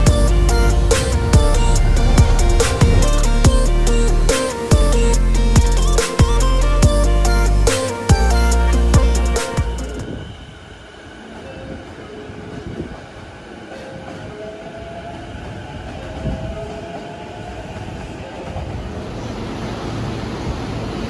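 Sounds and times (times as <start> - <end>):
train rumbling on rails: 0.0 - 7.7, 9.0 - 21.0
music: 0.0 - 10.0.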